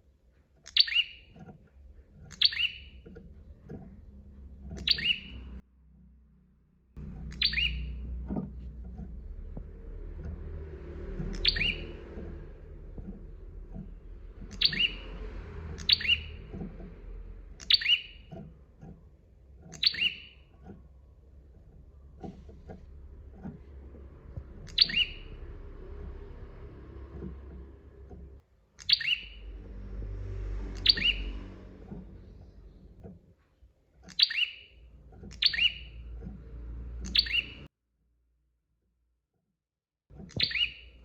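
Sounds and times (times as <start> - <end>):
low background rumble: 0.0 - 28.4, 29.1 - 37.7
bird chirping sharply: 0.6 - 1.4, 2.3 - 3.1, 4.8 - 5.6, 7.0 - 8.2, 11.2 - 12.4, 14.4 - 16.7, 17.5 - 18.4, 19.7 - 20.5, 24.5 - 27.2, 28.8 - 29.7, 30.6 - 32.0, 34.1 - 36.2, 37.0 - 37.7, 40.3 - 41.0.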